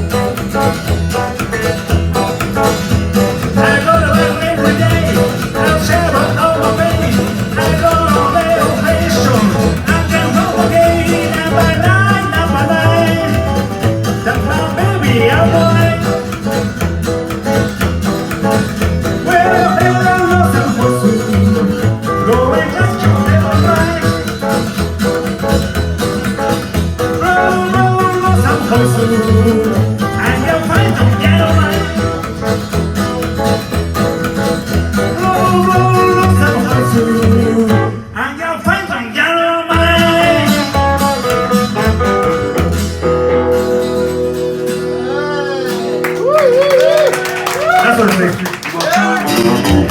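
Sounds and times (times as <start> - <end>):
low bass rhythm: 0.0 - 37.9
live band playing: 0.0 - 38.2, 39.7 - 49.9
guitar: 0.0 - 49.9
person singing: 3.3 - 16.6, 18.8 - 24.6, 27.2 - 32.5, 35.0 - 41.4, 44.6 - 47.5, 48.8 - 49.9.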